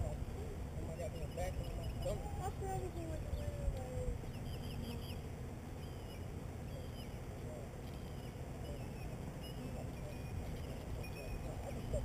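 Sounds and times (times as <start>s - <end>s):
low steady rumble: 0.0s - 12.0s
songbird chirping: 0.0s - 12.0s.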